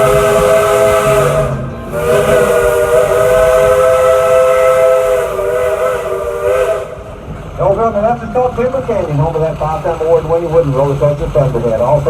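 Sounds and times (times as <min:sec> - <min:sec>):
steam locomotive chime whistle: 0:00.0 - 0:07.9
steam hissing: 0:00.0 - 0:12.0.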